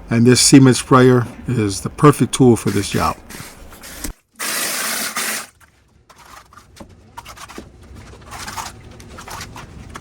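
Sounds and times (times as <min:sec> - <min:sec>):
cement sprayer hissing: 0:02.6 - 0:05.5
scraping and rubbing: 0:02.6 - 0:10.0.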